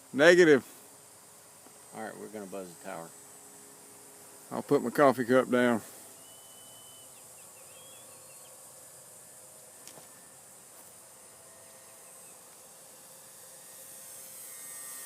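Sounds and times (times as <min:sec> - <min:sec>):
insects hissing: 0:00.0 - 0:15.0
model plane motor humming: 0:00.0 - 0:15.0.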